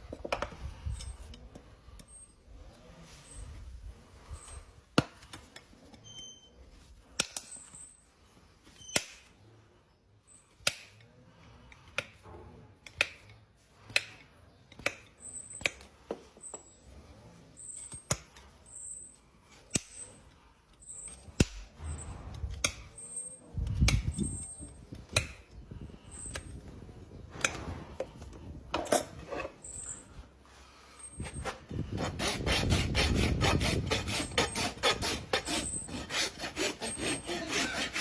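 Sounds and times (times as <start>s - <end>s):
hoof trimming tools snapping: 10.6s - 11.1s, 12.8s - 15.9s, 19.7s - 20.2s, 23.6s - 25.6s.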